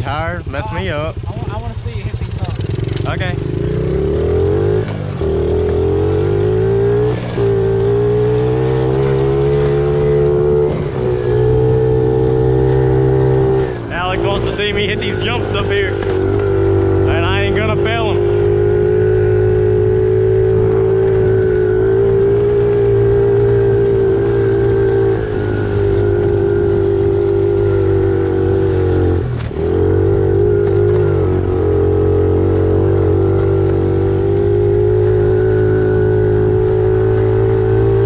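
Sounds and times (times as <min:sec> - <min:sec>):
small motorbike engine running: 0:00.2 - 0:10.9.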